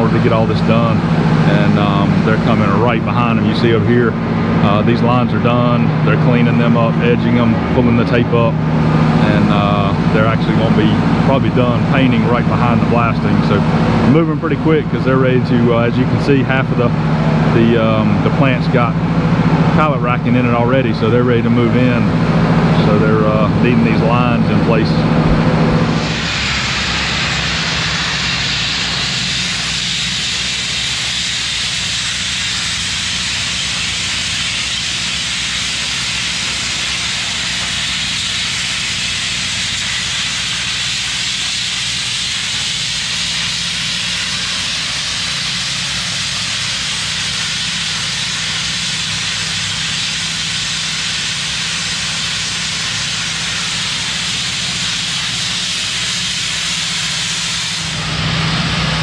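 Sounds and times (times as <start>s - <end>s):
steady low hum: 0.0s - 59.0s
blasting nozzle hissing: 24.9s - 59.0s.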